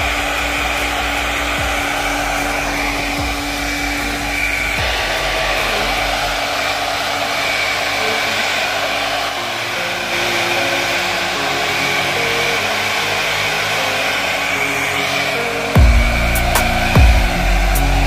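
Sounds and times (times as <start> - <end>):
hair dryer blowing: 0.0 - 18.0.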